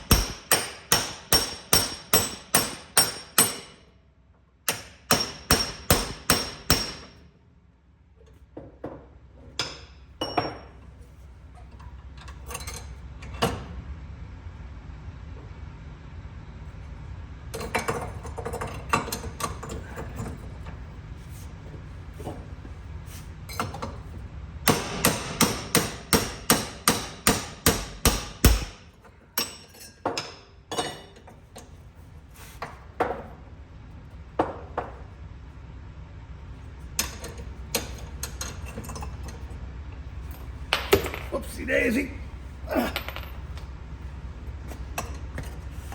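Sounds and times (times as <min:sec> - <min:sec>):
hammer blows on metal: 0:00.0 - 0:03.7.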